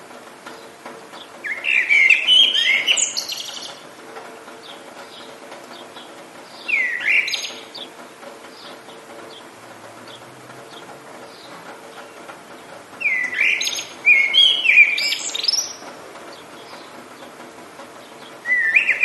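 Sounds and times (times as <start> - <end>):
rain hiss: 0.0 - 19.0
birds chirping: 0.5 - 3.9, 4.5 - 19.0
songbird warbling: 1.4 - 3.8, 4.7 - 8.0, 13.0 - 15.8, 18.2 - 19.0.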